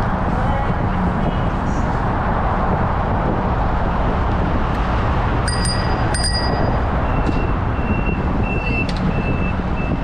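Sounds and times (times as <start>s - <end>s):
wind rumble on microphone: 0.0s - 10.0s
bicycle bell dings: 5.4s - 6.8s.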